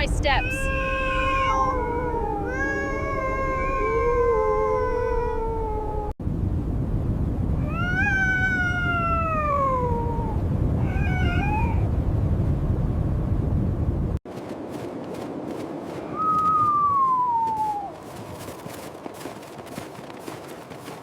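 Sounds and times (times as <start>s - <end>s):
blizzard wind: 0.0s - 21.0s
wolves howling: 0.4s - 6.2s.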